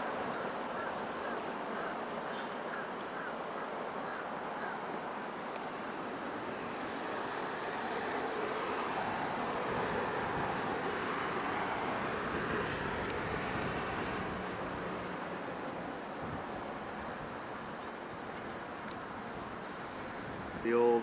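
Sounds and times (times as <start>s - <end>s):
passing vehicle: 5.8s - 16.2s.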